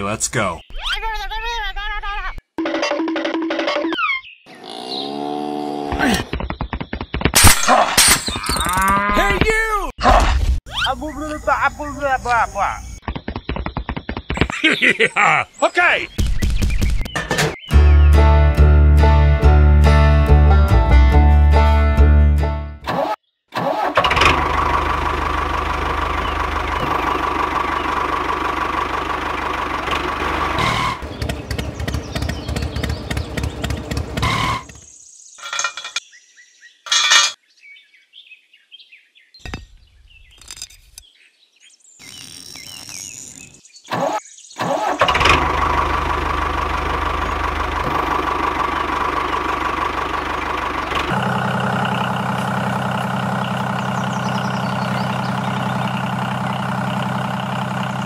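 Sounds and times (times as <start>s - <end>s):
diesel engine running: 23.8s - 34.8s, 44.7s - 58.0s.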